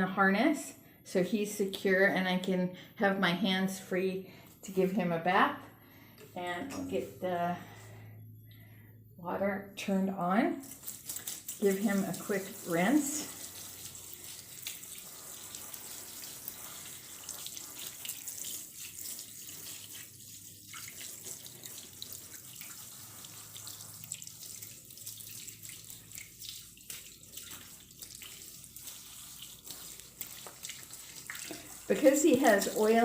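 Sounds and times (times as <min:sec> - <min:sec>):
water spraying from a sprayer: 0:10.6 - 0:33.0.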